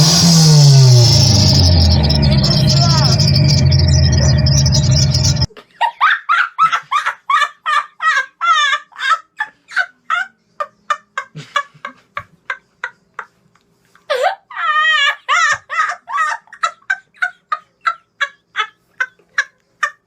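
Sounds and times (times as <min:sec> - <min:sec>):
car engine running: 0:00.0 - 0:05.5.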